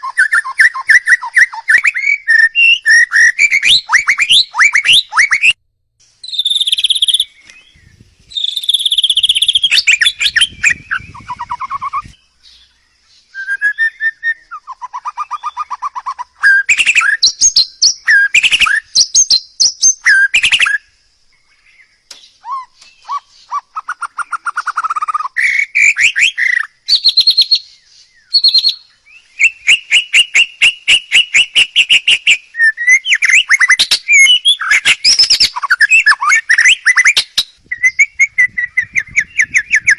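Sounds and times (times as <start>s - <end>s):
songbird singing with trills: 0.0s - 39.9s.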